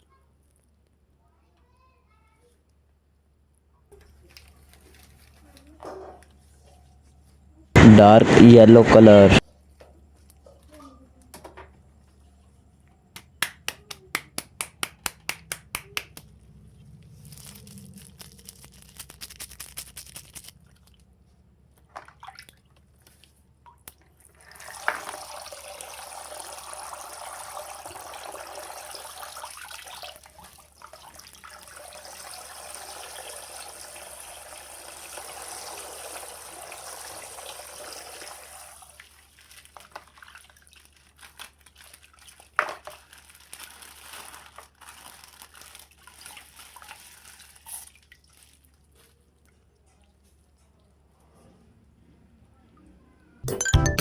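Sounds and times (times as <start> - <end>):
water pouring from plastic bag: 17.2 - 21.0, 24.3 - 49.4.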